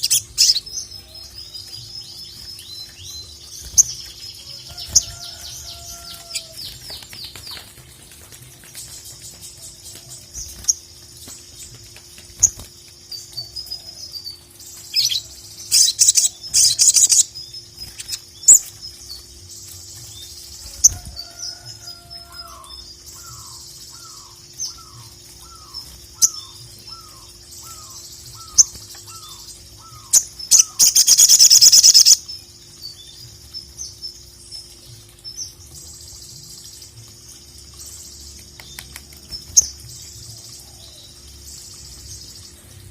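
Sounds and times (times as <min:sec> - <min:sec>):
songbird chattering and trilling: 0:22.4 - 0:32.3.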